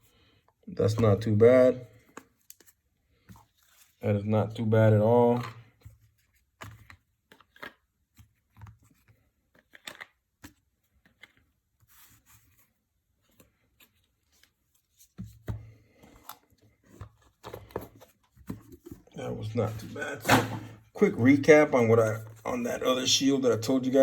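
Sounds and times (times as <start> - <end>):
trading cards rustling and clicking: 5.2 - 12.7, 13.3 - 24.0.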